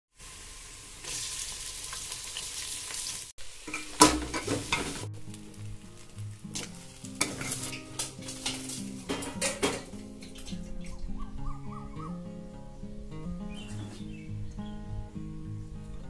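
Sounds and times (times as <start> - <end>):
chicken sizzling in hot oil: 0.1 - 10.4
background music: 3.7 - 16.0
metal spoon scraping a pot: 6.6 - 10.4.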